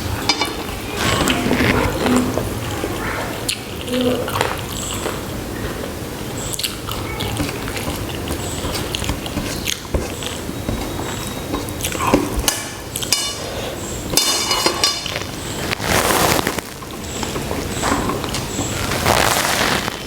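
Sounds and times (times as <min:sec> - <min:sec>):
person chewing food: 0:02.9 - 0:13.9.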